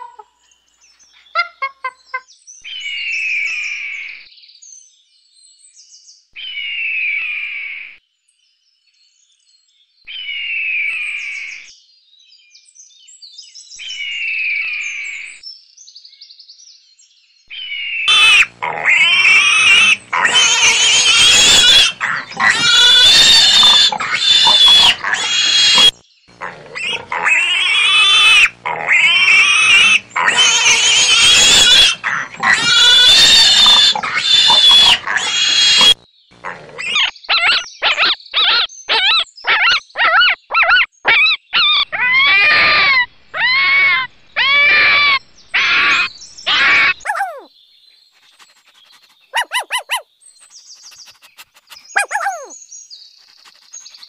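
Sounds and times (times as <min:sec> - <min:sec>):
fox yips and yelps: 0:18.1 - 0:25.9, 0:26.5 - 0:47.5, 0:48.3 - 0:52.6
piglets squealing: 0:18.1 - 0:47.5, 0:48.3 - 0:52.6.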